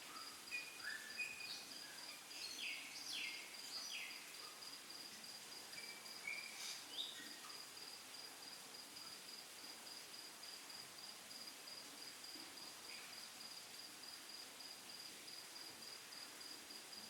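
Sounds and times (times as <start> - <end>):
bird chirps: 0.1 - 4.3, 5.8 - 7.5.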